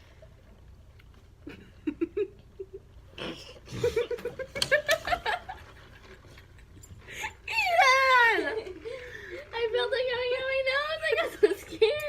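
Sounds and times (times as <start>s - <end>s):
girls laughing: 3.6s - 6.0s.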